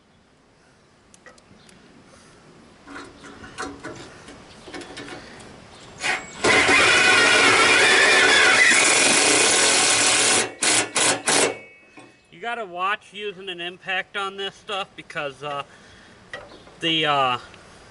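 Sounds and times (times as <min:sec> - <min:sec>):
parts clicking and knocking: 0:02.8 - 0:05.5
impact driver driving a screw: 0:06.0 - 0:11.6.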